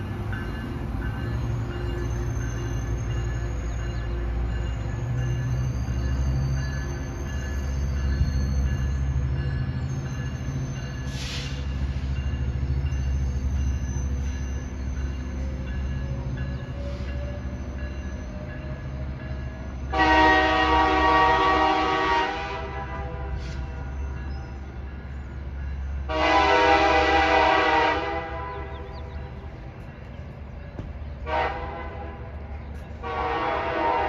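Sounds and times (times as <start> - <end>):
train rumble: 0.0 - 34.0
loud train horn: 19.9 - 23.8, 26.0 - 29.1, 31.2 - 34.0.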